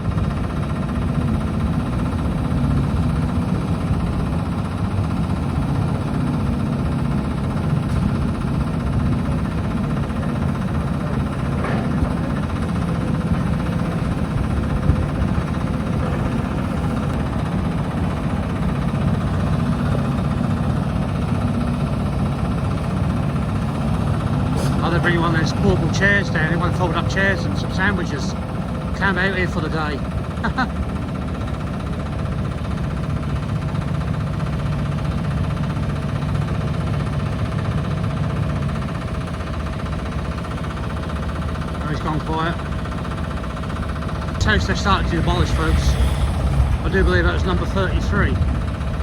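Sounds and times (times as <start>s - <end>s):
diesel excavator engine running: 0.0s - 49.0s.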